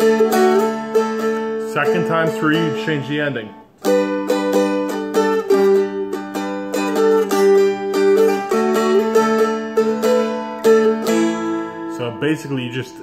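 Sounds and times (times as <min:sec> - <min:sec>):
plucked dulcimer melody: 0:00.0 - 0:12.8.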